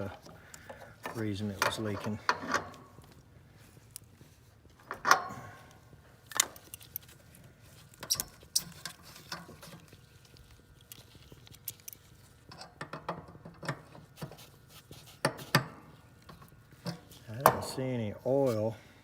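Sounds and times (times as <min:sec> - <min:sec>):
hand tools clicking and clinking: 0:06.2 - 0:10.0, 0:10.8 - 0:14.4.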